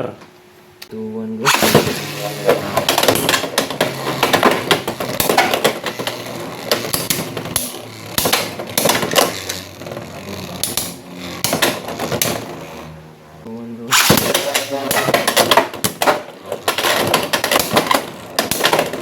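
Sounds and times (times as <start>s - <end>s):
faint spinning hum: 0.0s - 19.0s
spinning tops clacking: 1.5s - 12.7s.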